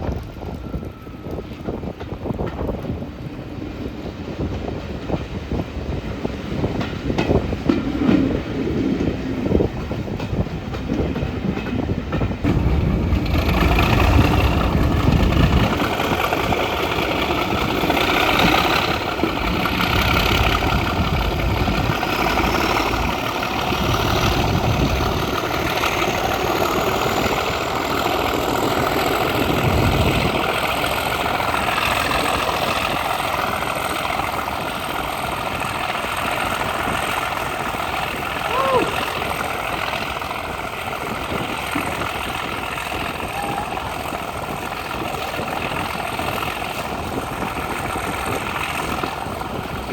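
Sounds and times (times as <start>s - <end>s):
diesel locomotive engine working hard: 0.0s - 49.9s
wheels clicking over rail joints: 0.0s - 49.9s
engine whine climbing in pitch: 12.4s - 49.9s.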